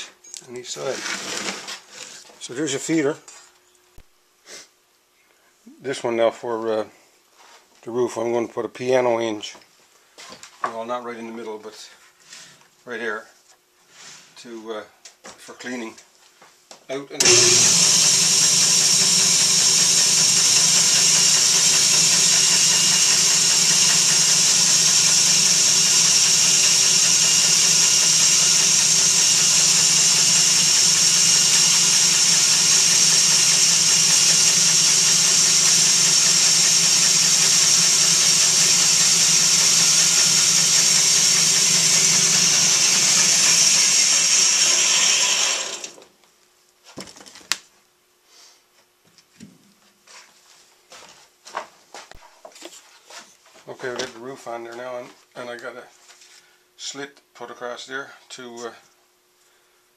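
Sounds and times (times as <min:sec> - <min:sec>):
power saw cutting wood: 0:00.9 - 0:02.1, 0:17.2 - 0:46.0.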